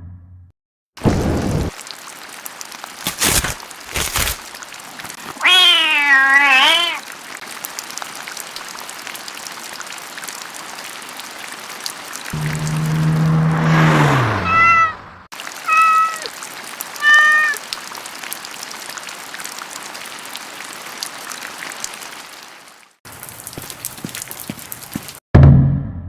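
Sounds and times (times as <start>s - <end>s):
steady rain hiss: 1.0s - 13.5s, 15.3s - 25.2s
kitten meowing: 5.4s - 7.0s, 14.4s - 15.0s, 15.6s - 16.3s, 17.0s - 17.6s.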